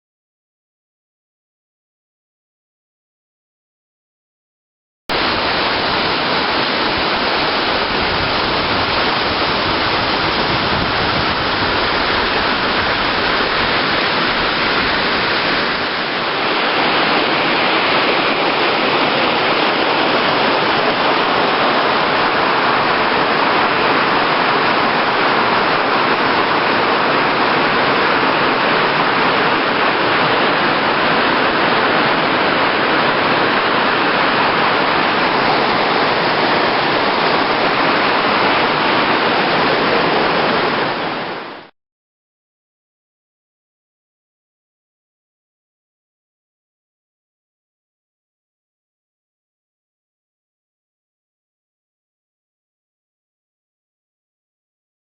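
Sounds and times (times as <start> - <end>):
waterfall splashing: 5.1 - 41.7.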